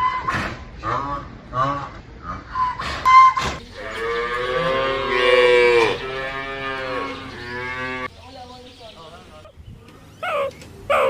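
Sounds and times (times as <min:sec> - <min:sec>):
cow mooing: 0:03.8 - 0:08.1.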